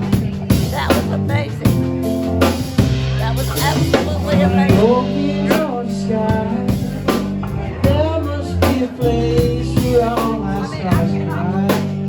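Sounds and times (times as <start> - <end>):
bass: 0.0 - 12.0
bending lead melody: 0.0 - 12.0
drum kit beat: 0.0 - 12.0
guitar: 0.0 - 12.0.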